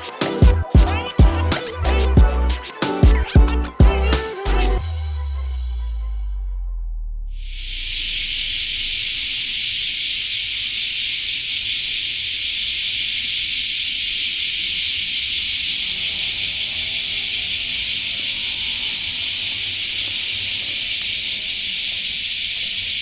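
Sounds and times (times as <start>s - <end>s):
shrill insect chorus: 7.4s - 23.0s.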